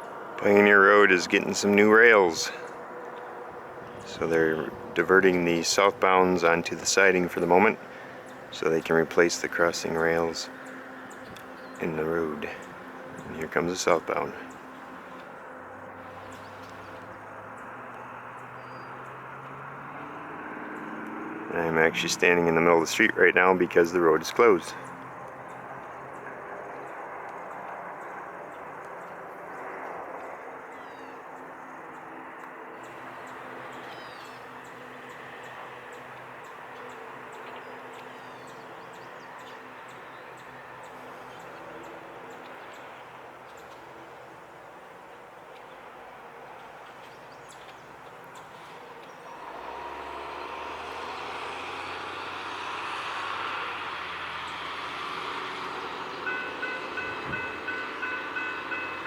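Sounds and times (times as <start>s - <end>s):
locomotive engine drone: 0.0s - 30.7s, 31.4s - 59.0s
distant train rumble: 0.0s - 59.0s
faint bird chirps: 32.8s - 41.6s.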